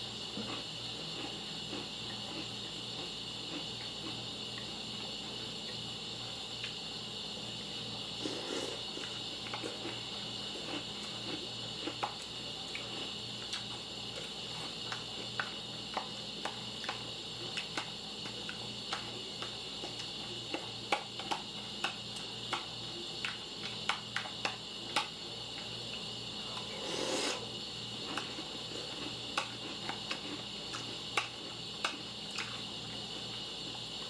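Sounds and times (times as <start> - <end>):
electrical hum and hiss: 0.0 - 34.0
person crunching cereal: 28.0 - 31.5.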